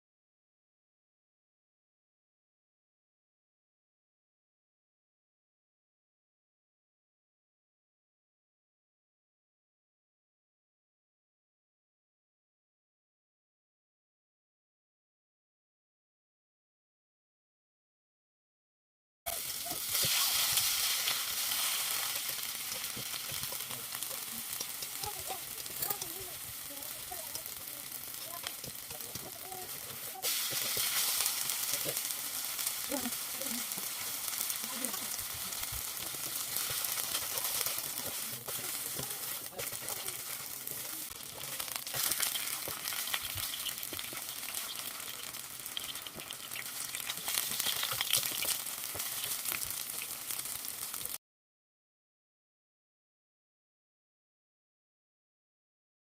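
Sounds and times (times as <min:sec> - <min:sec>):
pancake sizzling in hot oil: 0:19.3 - 0:51.2.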